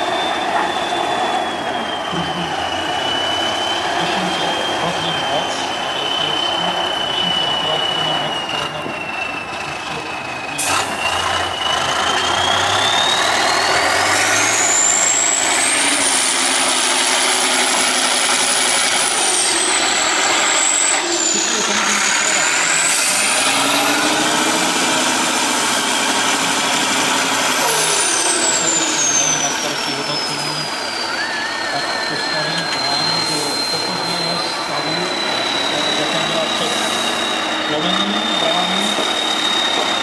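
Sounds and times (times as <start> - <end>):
high whine: 0.0 - 40.0
truck diesel engine working: 0.0 - 40.0.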